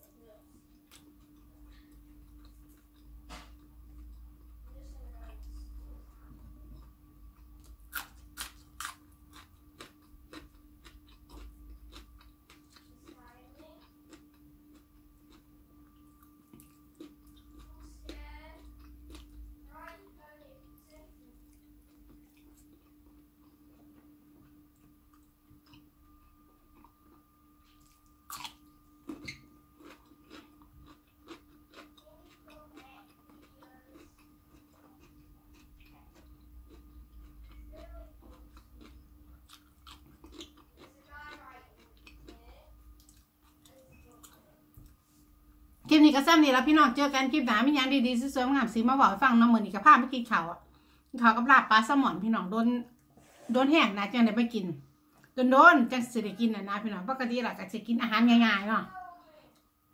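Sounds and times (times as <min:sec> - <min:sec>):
faint steady hum: 0:00.0 - 0:59.9
person chewing: 0:00.6 - 0:05.6, 0:06.6 - 0:20.0, 0:20.6 - 0:45.4.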